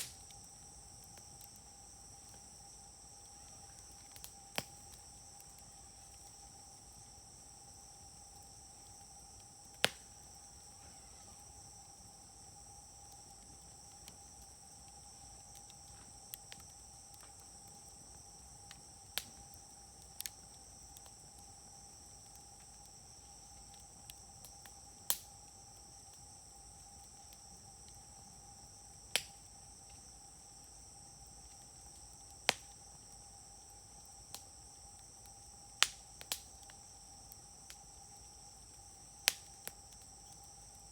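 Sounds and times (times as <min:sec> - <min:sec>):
firewood popping: 0:00.0 - 0:06.6, 0:08.7 - 0:11.8
low fire: 0:00.0 - 0:40.9.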